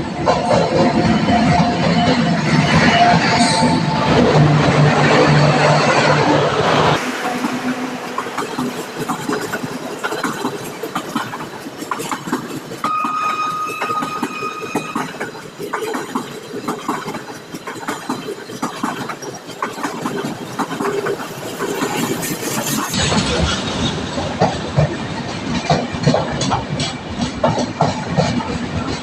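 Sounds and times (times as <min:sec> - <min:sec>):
steady high tone: 0:02.7 - 0:10.1
train wheels clattering over rail joints: 0:07.0 - 0:29.0.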